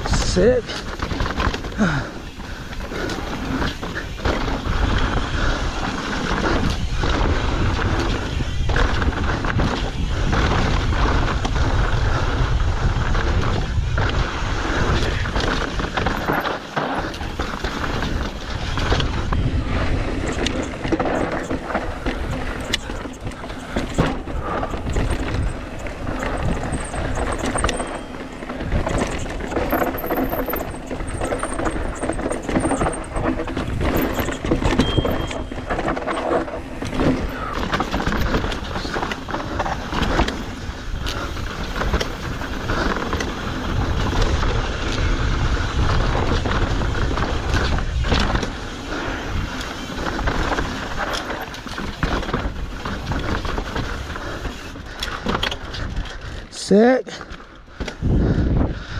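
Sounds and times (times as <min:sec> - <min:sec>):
bike frame and chain rattling: 0:00.0 - 0:58.6
bike tyres crunching over dirt: 0:00.0 - 0:58.9.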